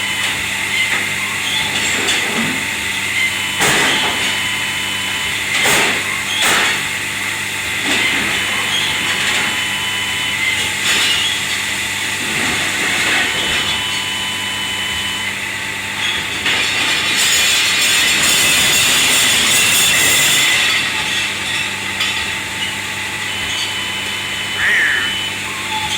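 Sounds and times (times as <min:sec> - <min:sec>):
steady machine hum: 0:22.1 - 0:25.9.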